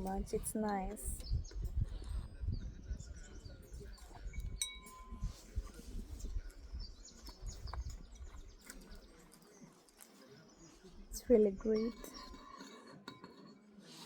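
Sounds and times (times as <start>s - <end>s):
tableware taps and clicks: 4.4s - 5.4s, 11.7s - 13.6s
spoon clinking on soup bowl: 4.4s - 5.6s, 11.7s - 13.8s.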